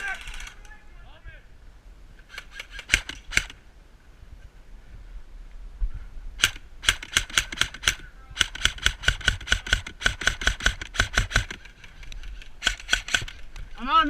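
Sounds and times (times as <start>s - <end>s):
airsoft gun firing: 2.3s - 3.6s, 6.4s - 11.6s, 12.6s - 13.4s.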